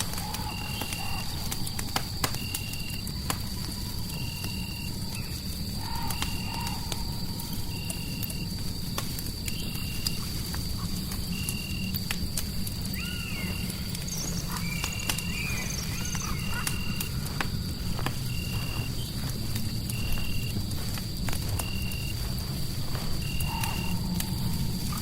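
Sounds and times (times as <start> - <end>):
fireplace crackling and popping: 0.0 - 25.0
wavering gliding animal calls: 5.1 - 8.4, 12.9 - 17.4, 23.2 - 25.0.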